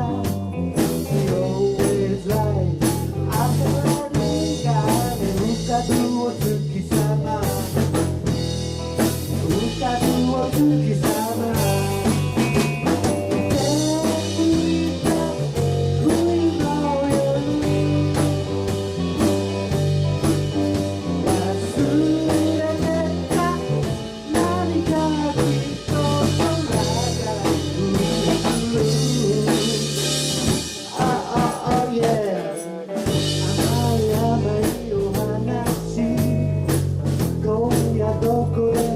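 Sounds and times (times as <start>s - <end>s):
person singing: 0.0s - 8.0s, 9.3s - 12.6s, 13.3s - 19.5s, 21.0s - 38.9s
guitar melody: 0.0s - 37.2s
bass line: 0.0s - 38.9s
drum kit beat: 0.0s - 38.9s.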